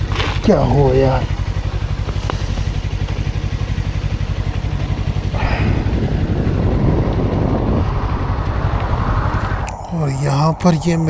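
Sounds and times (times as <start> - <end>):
motorcycle engine running: 0.0 - 9.8
rushing noise: 5.3 - 11.0.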